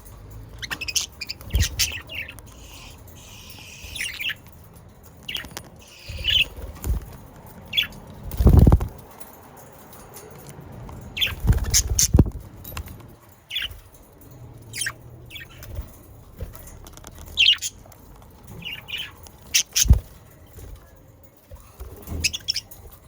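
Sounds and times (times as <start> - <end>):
budgerigars chirping and squawking: 0.6 - 4.5, 5.2 - 6.9, 7.7 - 8.9, 11.2 - 12.3, 13.5 - 13.8, 14.6 - 15.9, 17.2 - 17.8, 18.6 - 20.0, 22.1 - 22.7.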